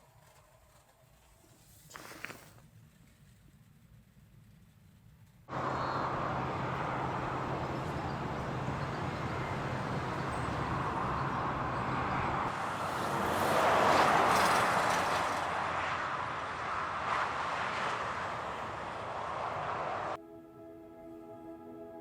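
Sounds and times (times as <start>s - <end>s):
engine hum: 5.5s - 20.2s
traffic on wet road: 5.5s - 20.2s
vehicle passing: 5.5s - 20.2s.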